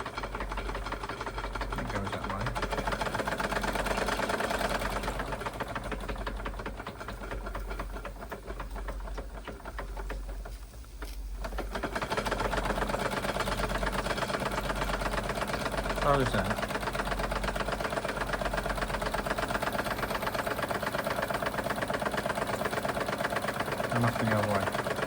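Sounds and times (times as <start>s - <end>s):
model steam engine running: 0.0s - 25.0s.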